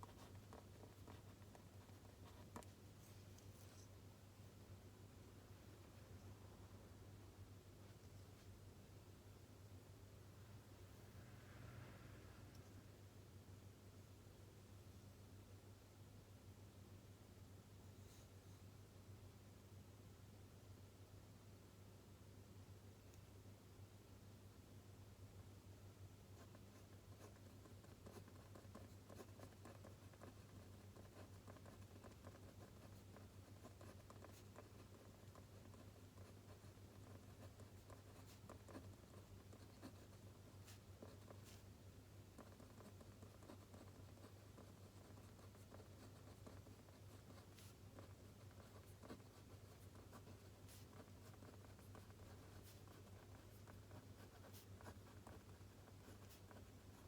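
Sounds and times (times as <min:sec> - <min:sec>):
pencil scratching on paper: 0:00.0 - 0:03.9, 0:26.4 - 0:57.0
low room hum: 0:00.0 - 0:57.0.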